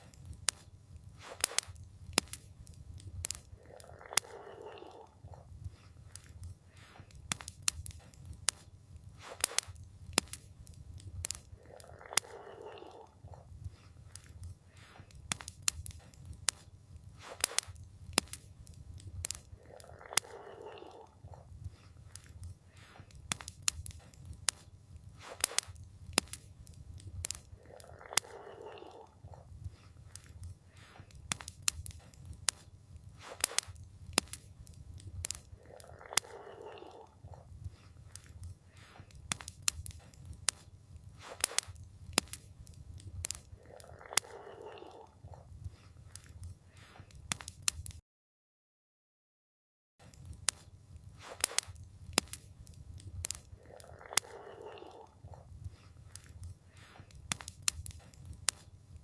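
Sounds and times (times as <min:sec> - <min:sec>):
campfire crackling: 0:00.0 - 0:48.0, 0:50.0 - 0:59.0.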